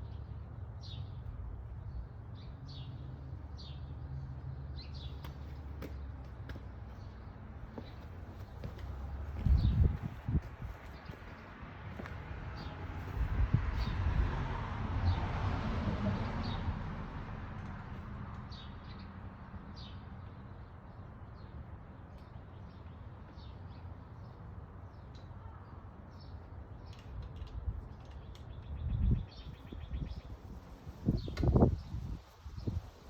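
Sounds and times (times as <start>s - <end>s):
birds chirping: 4.8s - 14.0s.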